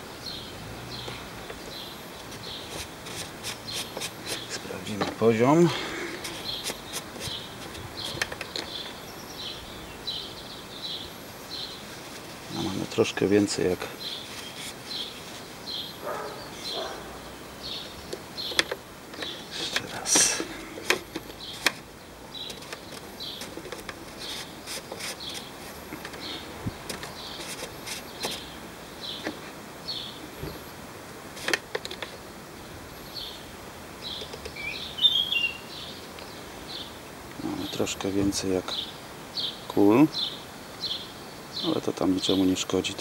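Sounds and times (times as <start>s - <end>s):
small birds chirping: 0.0s - 43.0s
plastic cap clicks and rustles: 6.1s - 9.0s, 18.1s - 21.8s, 22.4s - 26.3s, 31.4s - 32.2s.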